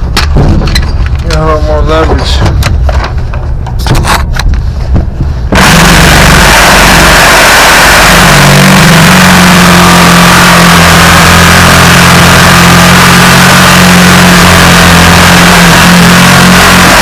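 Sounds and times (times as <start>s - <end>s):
power tool motor running: 5.5s - 17.0s.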